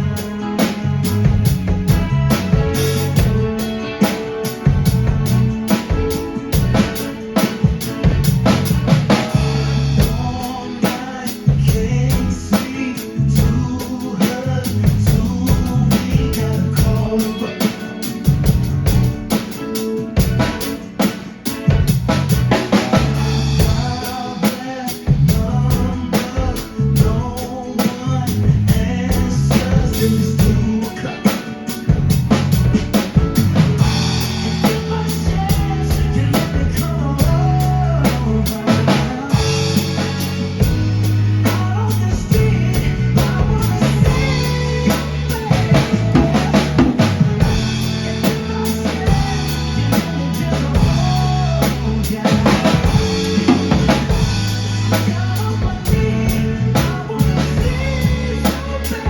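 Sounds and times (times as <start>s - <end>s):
drum kit groove: 0.0s - 59.0s
recorded song with singing: 0.0s - 59.0s.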